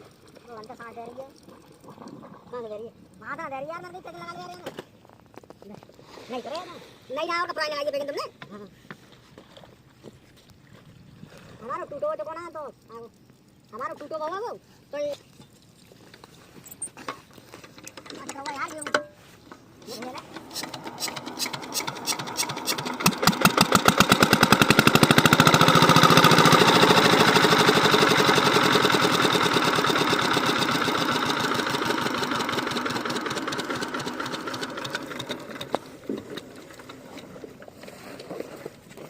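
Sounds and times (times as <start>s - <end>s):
diesel pump engine knocking: 20.5s - 36.5s.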